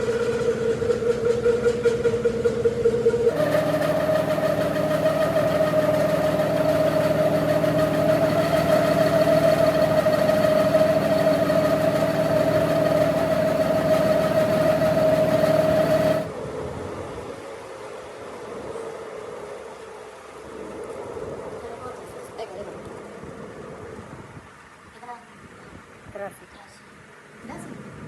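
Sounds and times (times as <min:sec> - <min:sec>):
motor humming: 0:00.0 - 0:16.3.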